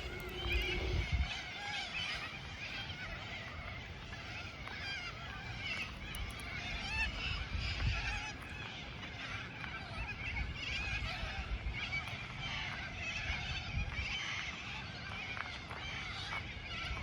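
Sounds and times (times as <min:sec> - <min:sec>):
chorus of birds chattering: 0:00.0 - 0:17.0.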